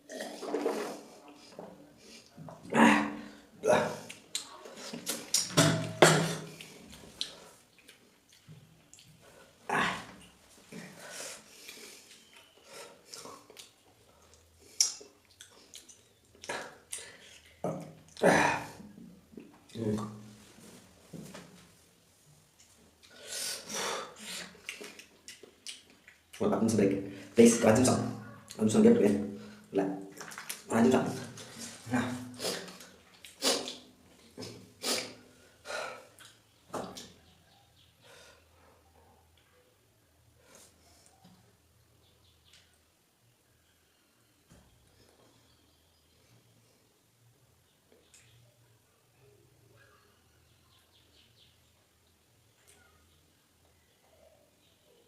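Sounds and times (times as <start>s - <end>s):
person chewing noisily: 6.2s - 18.2s, 22.6s - 26.4s, 30.1s - 30.7s, 31.3s - 35.2s, 36.0s - 37.0s
person breathing hard snorting: 23.1s - 24.6s.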